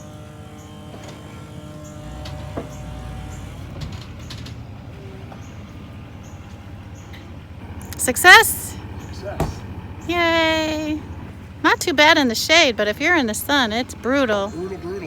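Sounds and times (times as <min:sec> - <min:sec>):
vehicle engine idling and pulling: 0:00.0 - 0:15.0
sharp knocks: 0:09.4 - 0:09.8.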